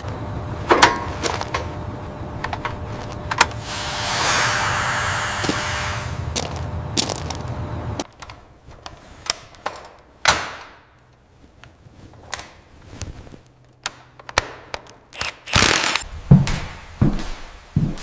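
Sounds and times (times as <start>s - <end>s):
steady rumbling noise: 0.0s - 8.9s
rushing burst: 3.6s - 6.3s
sharp clicks and knocks: 13.6s - 16.6s.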